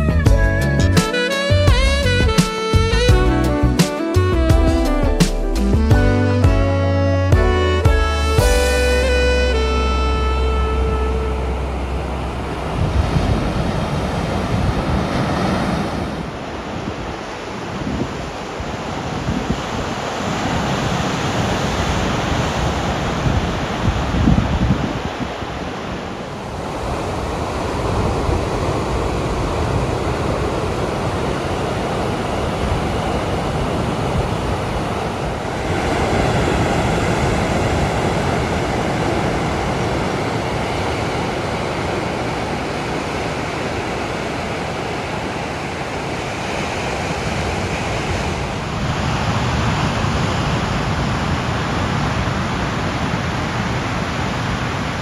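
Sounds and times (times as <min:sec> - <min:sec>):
surf breaking on rocky shore: 0:12.4 - 0:55.0.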